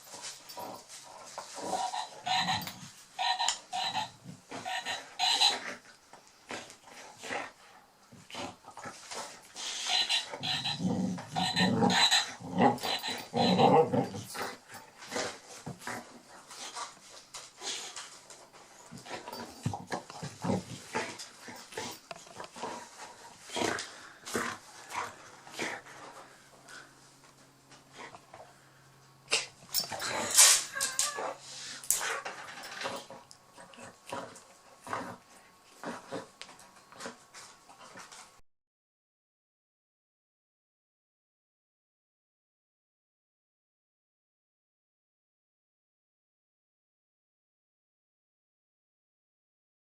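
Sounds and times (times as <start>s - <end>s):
dog growling in play: 0.5s - 5.8s, 8.2s - 16.2s, 19.0s - 26.9s, 29.4s - 36.4s
squeaky toy: 1.8s - 5.6s, 9.8s - 10.8s, 11.4s - 13.6s
dog whimpering and yipping: 30.7s - 31.4s.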